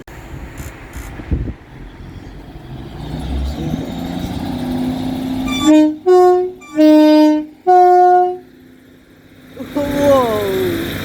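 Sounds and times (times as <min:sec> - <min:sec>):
diesel engine rising: 0:00.0 - 0:11.0
two-tone train horn: 0:05.4 - 0:08.5.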